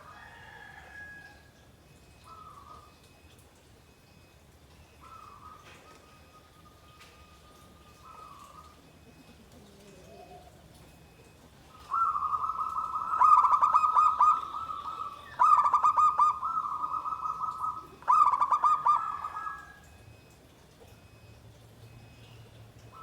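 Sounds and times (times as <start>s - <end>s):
dove cooing: 2.3s - 2.9s, 5.0s - 6.2s, 7.4s - 19.9s.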